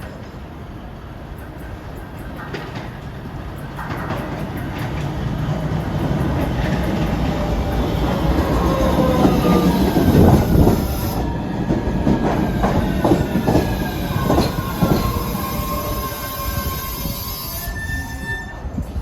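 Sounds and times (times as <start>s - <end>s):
train wheels knocking on rail joints: 1.4s - 17.0s
train wheels squealing: 5.8s - 19.0s.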